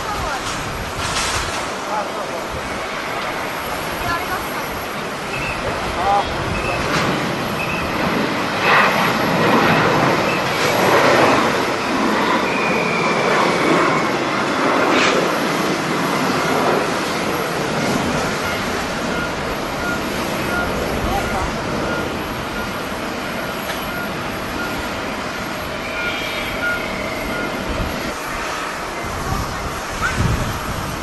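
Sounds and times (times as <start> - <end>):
jet engines running: 0.0 - 31.0
faint high whine: 18.2 - 30.8.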